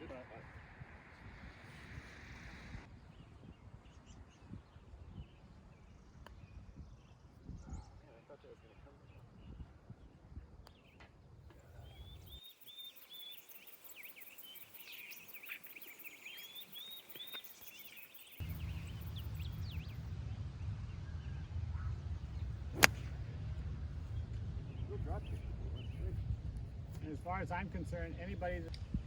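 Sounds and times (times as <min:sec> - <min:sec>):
steady low rumble: 0:00.0 - 0:04.3, 0:18.2 - 0:29.0
birds chirping: 0:10.7 - 0:20.1, 0:21.8 - 0:23.2, 0:24.0 - 0:29.0
golf club striking ball: 0:22.8 - 0:23.2.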